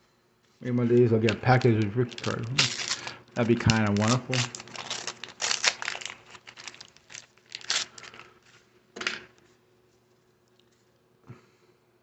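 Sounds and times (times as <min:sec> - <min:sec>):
wax paper wrapper crinkling and tearing: 0:00.7 - 0:08.4.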